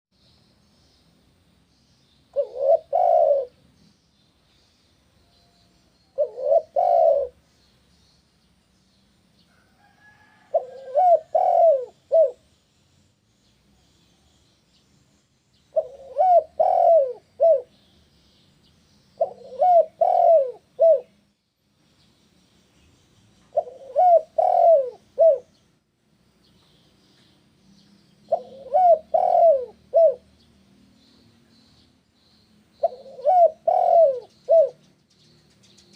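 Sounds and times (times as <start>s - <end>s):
small birds chirping: 0.2s - 35.9s
dove cooing: 2.3s - 3.6s, 6.2s - 7.4s, 10.2s - 12.4s, 15.7s - 17.8s, 19.2s - 21.2s, 23.5s - 25.6s, 28.3s - 30.4s, 32.8s - 34.9s.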